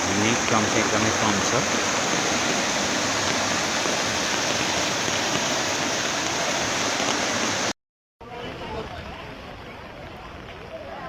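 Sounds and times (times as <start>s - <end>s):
river water rushing: 0.0s - 7.7s.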